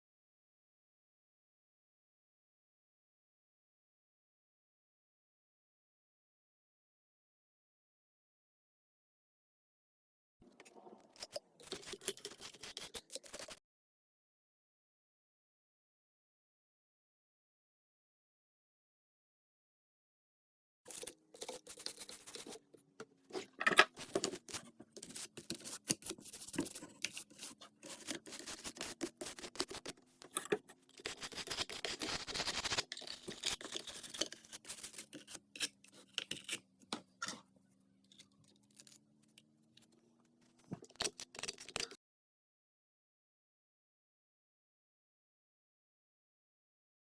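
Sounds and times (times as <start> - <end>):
brush scrubbing toy car: 11.1 - 13.6, 20.9 - 36.0.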